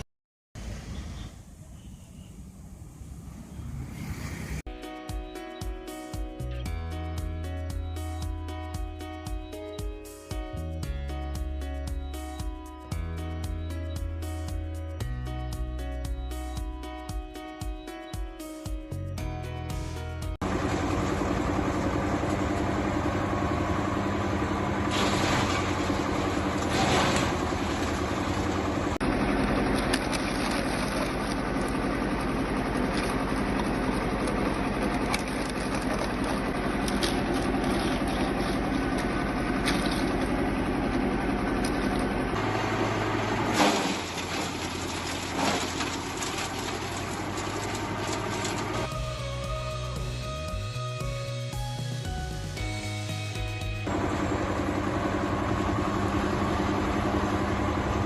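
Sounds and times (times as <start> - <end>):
wood chipper running: 20.4 - 50.2, 53.8 - 58.0.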